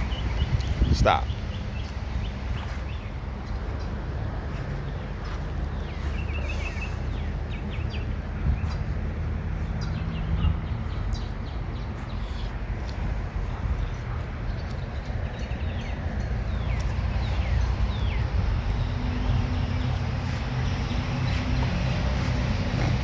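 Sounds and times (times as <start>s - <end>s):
steady low rumble: 0.0s - 23.0s
bird chirps: 4.6s - 9.0s.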